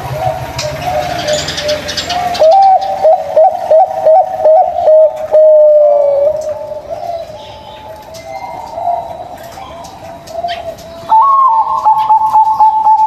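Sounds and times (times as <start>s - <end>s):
doves cooing: 0.0s - 13.0s.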